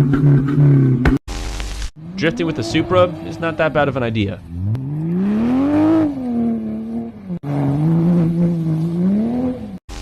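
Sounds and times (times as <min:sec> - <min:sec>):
car engine revving: 0:02.0 - 0:09.8.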